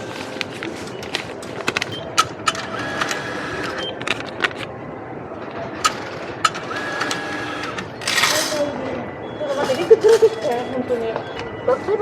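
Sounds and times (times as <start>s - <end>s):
station background hum: 0.0s - 12.0s
ticket machine clicks and beeps: 0.8s - 4.2s, 5.7s - 12.0s.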